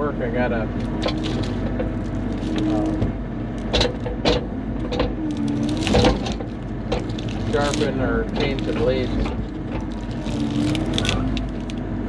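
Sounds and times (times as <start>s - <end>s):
excavator diesel engine running: 0.0s - 12.0s
sharp metal knocks and clanks: 1.0s - 10.0s.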